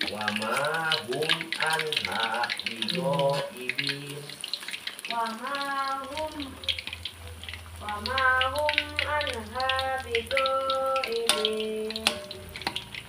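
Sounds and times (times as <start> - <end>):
food sizzling in hot oil: 0.0 - 13.0
woman singing: 5.1 - 6.8, 7.8 - 12.6.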